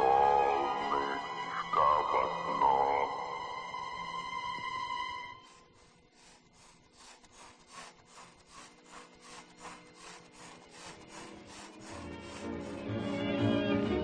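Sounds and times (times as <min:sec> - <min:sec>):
faint rhythmic scraping: 0:04.2 - 0:13.5.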